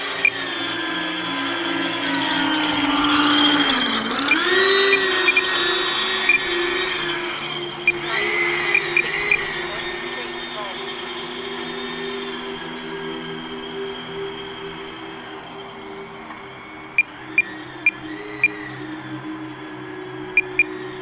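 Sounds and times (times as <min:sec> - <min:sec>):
electric ducted fan whine: 0:00.0 - 0:21.0.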